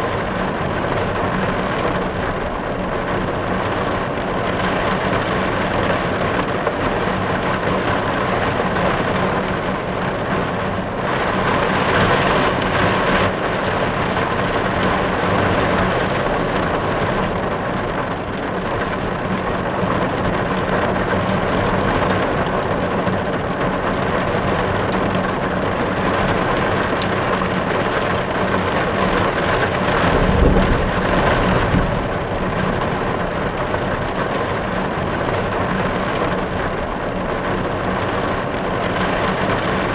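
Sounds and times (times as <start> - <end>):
rain drumming on a car roof: 0.0 - 39.9
low rumble: 29.7 - 34.8.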